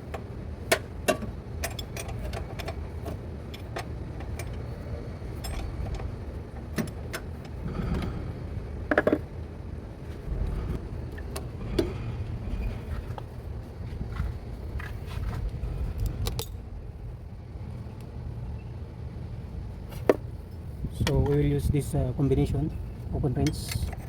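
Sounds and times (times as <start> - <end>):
low rumble: 7.5 - 19.8.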